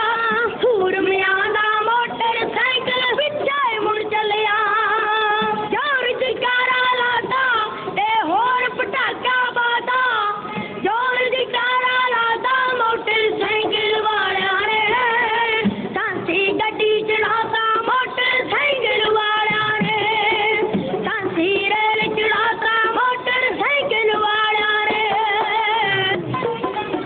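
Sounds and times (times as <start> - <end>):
musical accompaniment: 0.0 - 27.0
person singing high folk song: 0.0 - 27.0.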